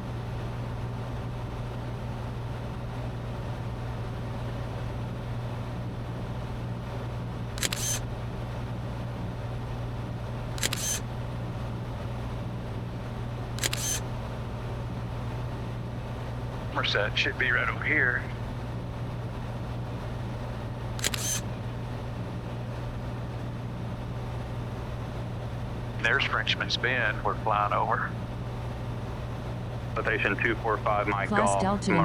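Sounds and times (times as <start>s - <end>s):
small plane engine drone: 0.0s - 32.0s
short sharp clicks: 7.6s - 8.0s, 10.6s - 11.0s, 21.0s - 21.4s.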